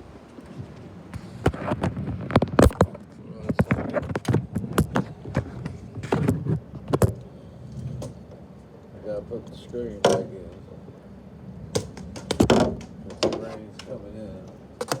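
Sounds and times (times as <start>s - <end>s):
object knocking and clacking: 11.8s - 14.0s.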